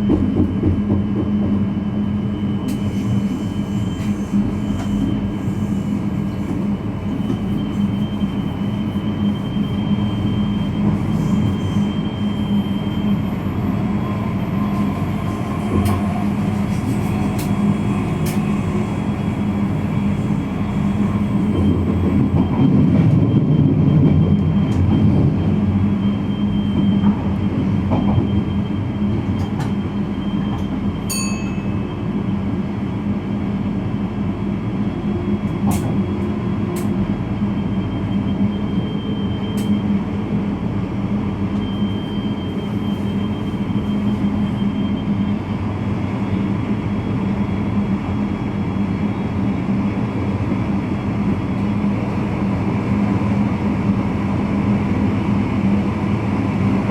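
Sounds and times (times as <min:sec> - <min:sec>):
electric train rumbling: 0:00.0 - 0:56.9
short high beep: 0:31.1 - 0:32.3.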